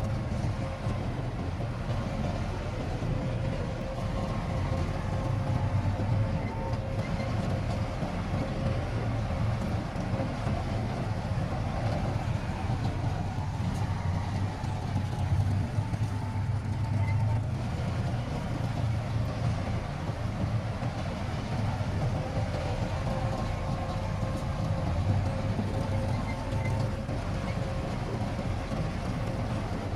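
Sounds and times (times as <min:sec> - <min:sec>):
diesel engine rumbling under load: 0:00.0 - 0:29.9
faint machine whine: 0:00.0 - 0:29.9.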